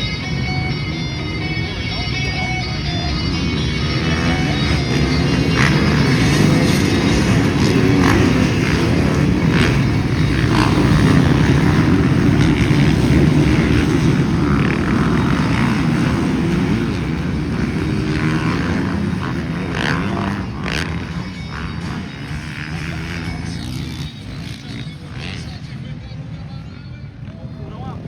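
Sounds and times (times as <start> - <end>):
motocross bikes revving: 0.0 - 28.0.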